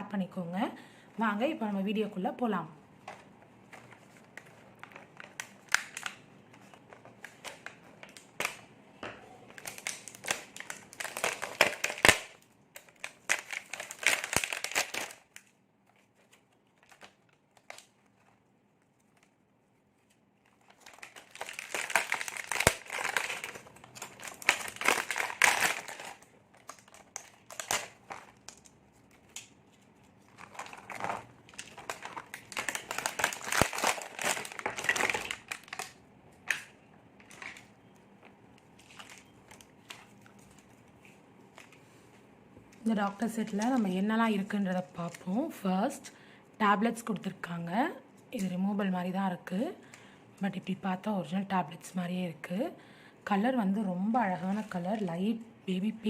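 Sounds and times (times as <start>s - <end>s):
packaging crinkling: 3.1s - 8.8s, 9.4s - 42.0s.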